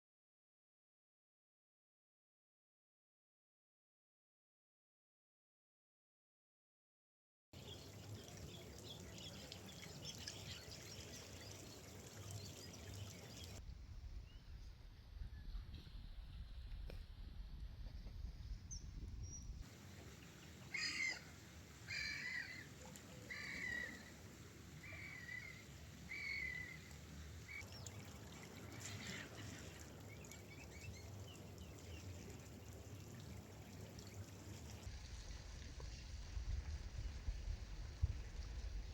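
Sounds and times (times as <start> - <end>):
gull calling: 20.7 - 21.3, 21.9 - 24.1.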